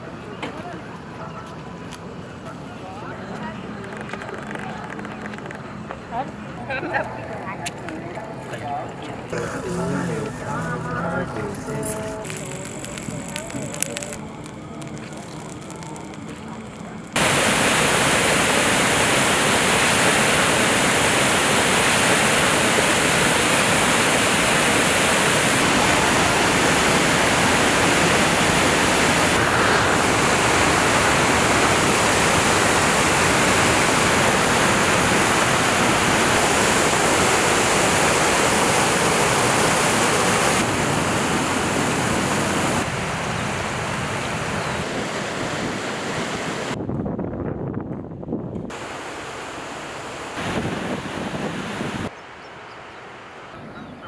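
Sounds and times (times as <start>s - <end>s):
rushing river water: 9.2s - 46.8s, 48.7s - 54.0s.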